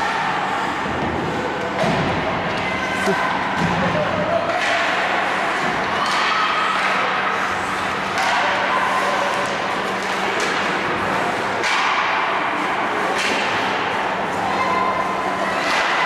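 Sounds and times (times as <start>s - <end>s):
faint constant hum: 0.0s - 16.0s
hockey sticks and puck knocking: 7.8s - 13.9s, 15.6s - 16.0s.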